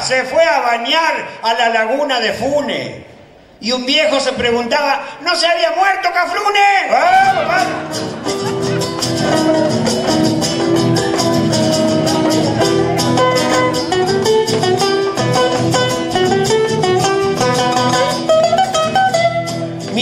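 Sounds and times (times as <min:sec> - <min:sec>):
guitar playing: 0:07.2 - 0:20.0.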